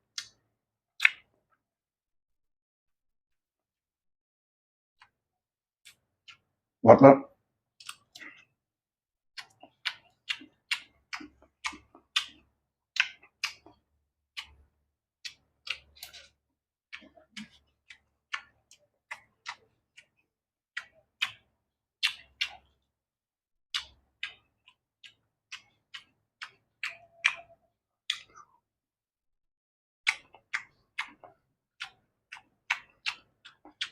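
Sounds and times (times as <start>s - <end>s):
crunchy chewing of carrot: 9.4s - 22.9s, 23.7s - 28.6s, 30.0s - 33.9s.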